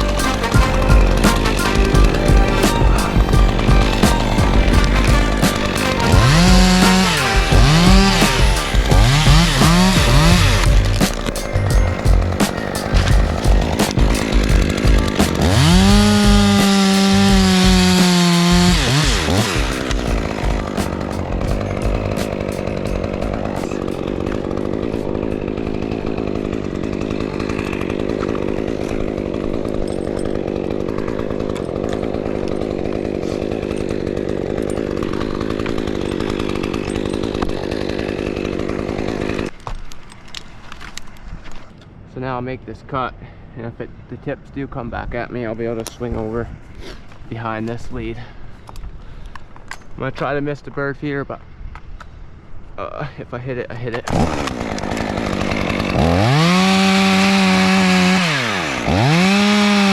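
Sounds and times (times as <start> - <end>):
chainsaw revving: 0.0 - 39.5, 53.9 - 59.9.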